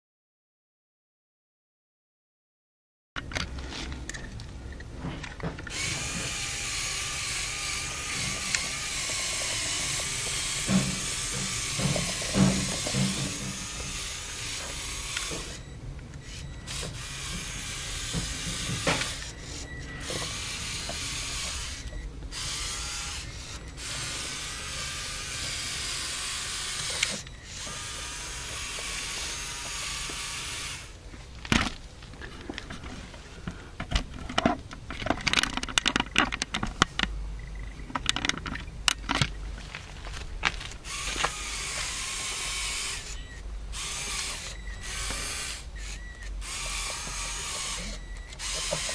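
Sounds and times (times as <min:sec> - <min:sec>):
plastic parts clicking and knocking: 0:03.2 - 0:06.3, 0:08.0 - 0:14.0, 0:31.4 - 0:41.9, 0:45.9 - 0:48.9
electric motors whining through gears: 0:05.2 - 0:31.0, 0:35.8 - 0:48.9.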